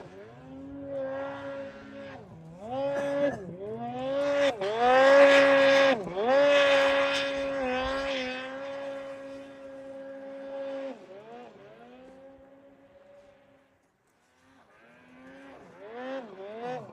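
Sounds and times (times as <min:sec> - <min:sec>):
snowmobile engine revving: 0:00.0 - 0:16.9.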